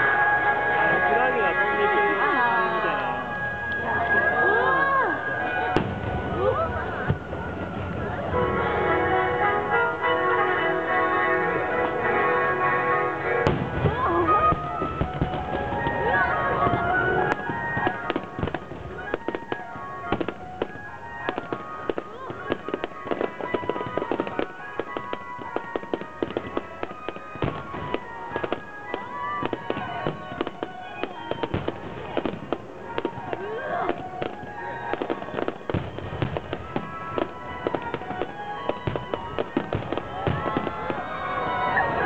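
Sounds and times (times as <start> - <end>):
fireworks crackling and banging: 0.0 - 42.0
music playing: 0.0 - 42.0.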